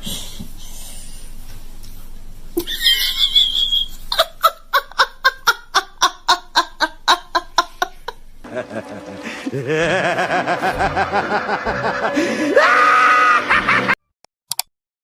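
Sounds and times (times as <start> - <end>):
rhythmic laughter: 2.6 - 14.0
high-pitched squeal: 8.6 - 13.8.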